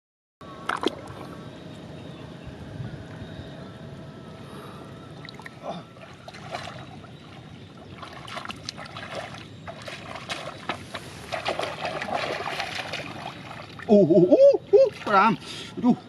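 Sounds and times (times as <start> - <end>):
shallow water sloshing by hand: 0.6 - 1.4, 5.2 - 13.9.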